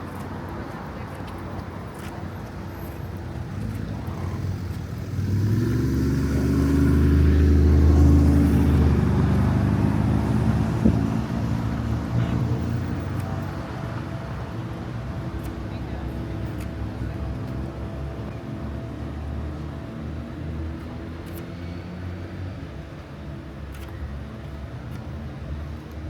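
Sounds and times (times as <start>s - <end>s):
vehicle passing by: 3.5s - 13.0s.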